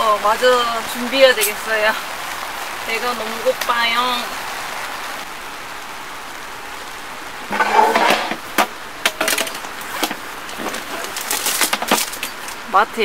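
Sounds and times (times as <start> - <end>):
rain on a car: 0.0 - 7.6, 8.3 - 13.0
rustling: 7.4 - 12.7
knocks and clicks of handling: 7.5 - 12.6.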